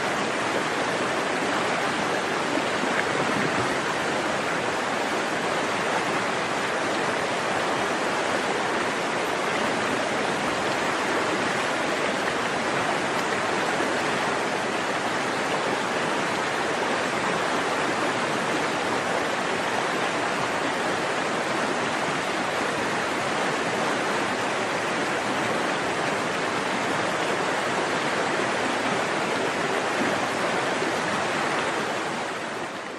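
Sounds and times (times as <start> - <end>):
stream water rushing over rocks: 0.0 - 32.9.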